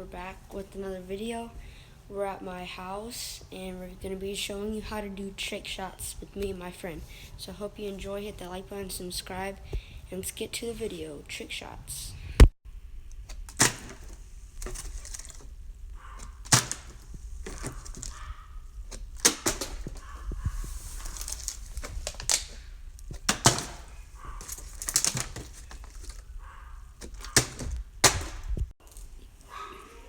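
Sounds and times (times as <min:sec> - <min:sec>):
sharp knocks and thuds: 0:13.3 - 0:20.7, 0:23.1 - 0:28.7.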